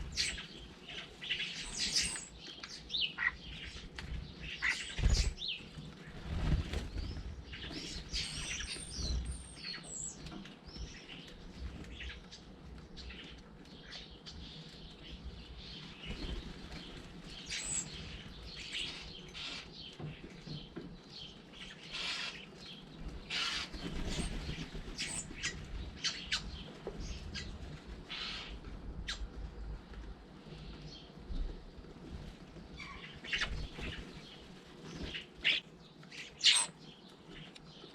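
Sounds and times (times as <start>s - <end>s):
birds chirping: 0.0s - 37.9s
wing flaps: 4.9s - 8.2s.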